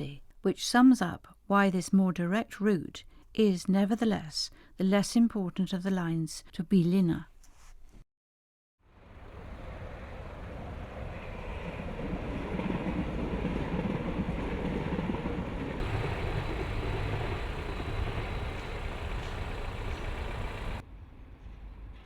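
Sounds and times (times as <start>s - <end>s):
train passing: 8.9s - 22.0s.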